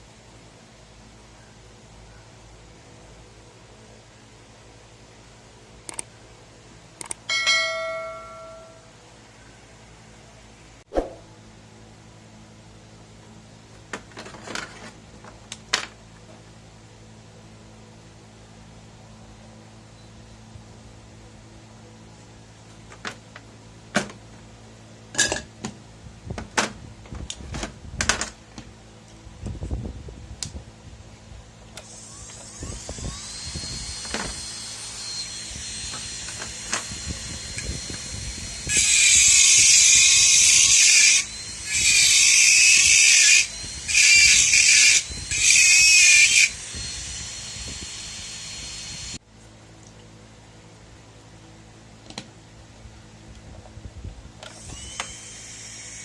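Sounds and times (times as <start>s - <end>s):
handpiece motor whining: 31.7s - 49.2s, 54.4s - 56.0s.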